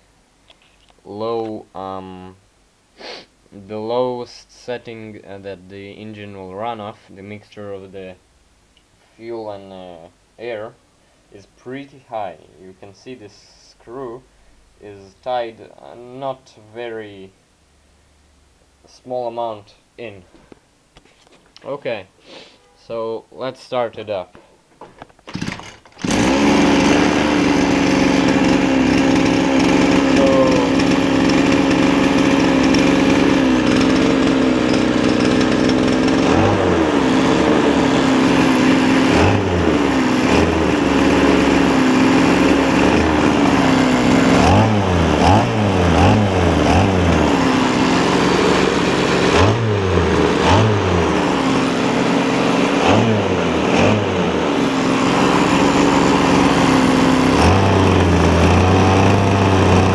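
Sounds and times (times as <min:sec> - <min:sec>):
small two-stroke engine revving: 0:25.3 - 0:59.9.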